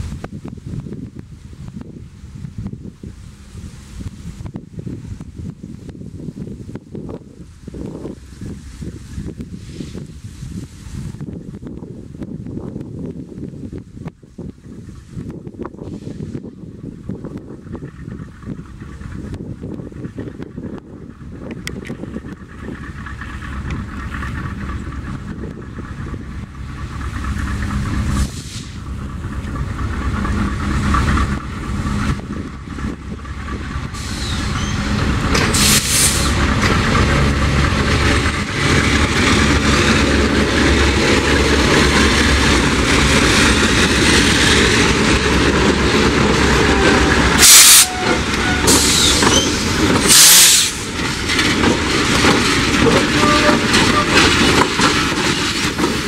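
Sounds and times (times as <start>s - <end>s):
diesel locomotive engines: 0.0s - 56.0s
train wheels on rails: 0.0s - 56.0s
air hiss bursts: 28.2s - 28.8s, 33.9s - 36.4s, 47.2s - 51.0s.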